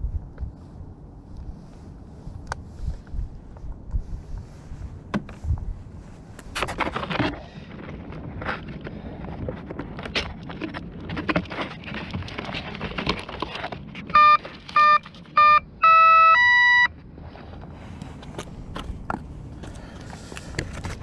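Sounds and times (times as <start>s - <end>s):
wind noise: 0.0s - 21.0s
electronic beeps and rising tones: 14.2s - 16.9s.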